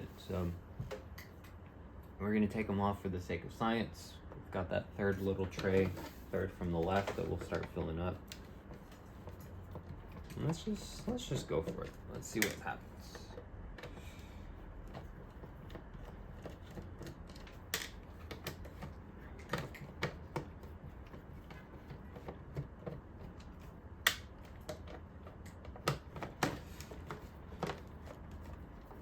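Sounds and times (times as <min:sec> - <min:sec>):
plastic parts being handled: 0:05.4 - 0:14.0.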